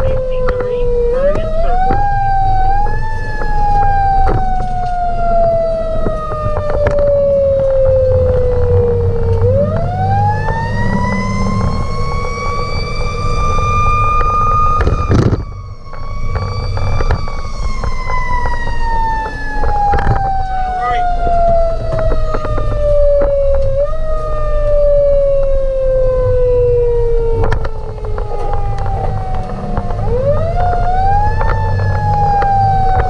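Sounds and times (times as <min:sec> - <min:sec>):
fire engine siren wailing: 0:00.0 - 0:33.0
truck engine and road rumble: 0:00.0 - 0:33.0.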